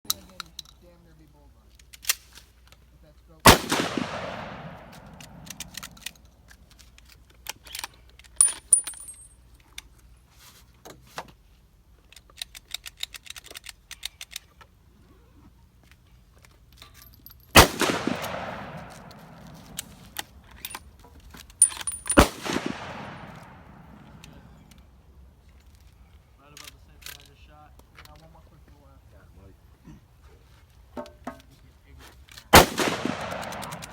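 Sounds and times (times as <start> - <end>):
metallic rifle bolt clicks: 1.7 - 2.8, 3.5 - 9.9, 12.0 - 14.7, 16.4 - 24.9, 32.3 - 33.9
rifle shots with echo: 3.5 - 6.1, 17.6 - 20.2, 21.8 - 24.5, 32.5 - 33.9.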